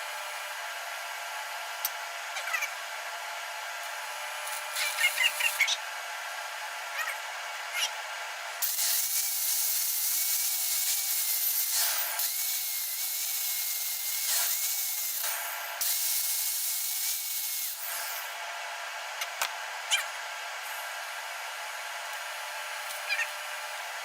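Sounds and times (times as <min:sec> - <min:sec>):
welding arc hissing: 0:08.6 - 0:18.4.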